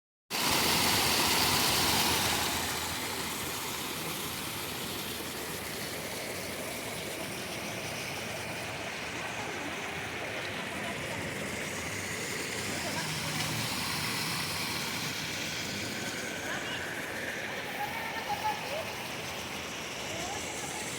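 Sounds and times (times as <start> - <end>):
waterfall rushing: 0.3 - 20.9.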